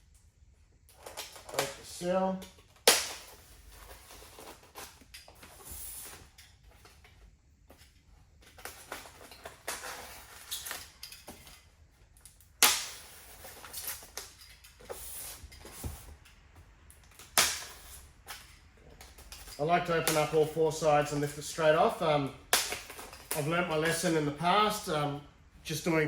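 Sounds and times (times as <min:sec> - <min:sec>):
sharp snap: 0:02.8 - 0:03.3, 0:17.2 - 0:17.9, 0:20.0 - 0:20.4
cardboard rustling and scraping: 0:03.2 - 0:12.0, 0:13.0 - 0:16.8.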